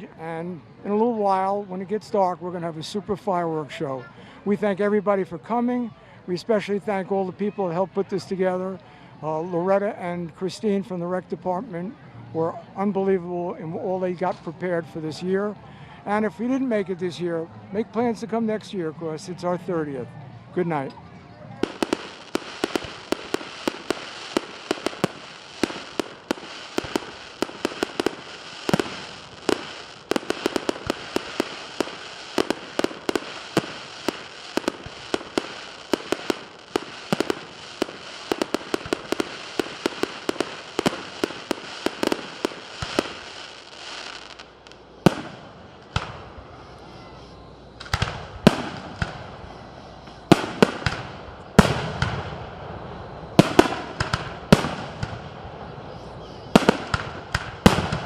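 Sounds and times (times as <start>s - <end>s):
fireworks bangs: 21.6s - 46.7s, 47.8s - 58.0s
fireworks crackling pops: 21.6s - 52.7s, 53.3s - 58.0s.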